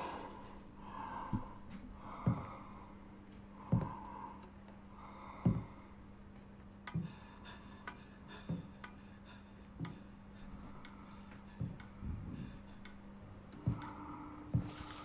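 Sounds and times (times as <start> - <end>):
heavy breathing into microphone: 0.0 - 6.0
steady low hum: 0.0 - 15.0.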